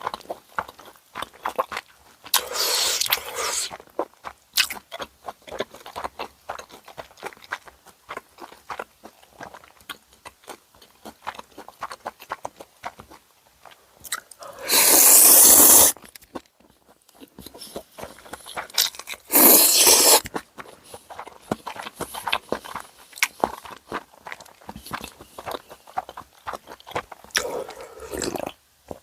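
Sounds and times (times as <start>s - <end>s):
chewing with crunchy bites: 0.0s - 29.0s
slurping noodles: 2.3s - 3.7s, 14.4s - 16.0s, 19.3s - 22.8s, 25.4s - 28.5s.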